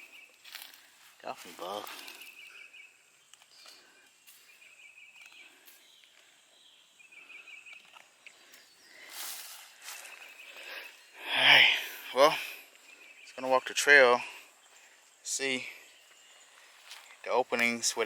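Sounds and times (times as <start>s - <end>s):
rustle: 0.0s - 2.6s, 7.7s - 11.0s, 16.0s - 18.0s.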